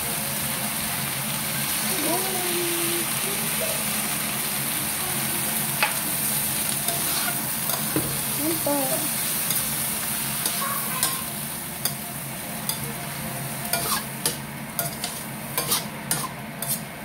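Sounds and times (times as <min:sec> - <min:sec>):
food sizzling in a wok: 0:00.0 - 0:17.0
spatula scraping and clicking on pan: 0:06.8 - 0:08.0, 0:13.7 - 0:16.9.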